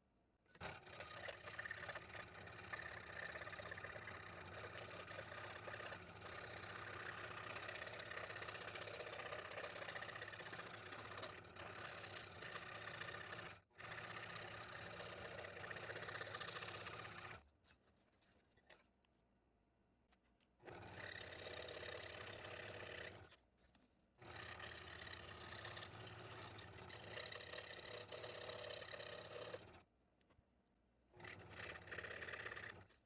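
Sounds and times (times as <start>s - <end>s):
scroll saw cutting thin wood: 0.6s - 17.4s, 24.4s - 29.8s, 31.2s - 32.8s.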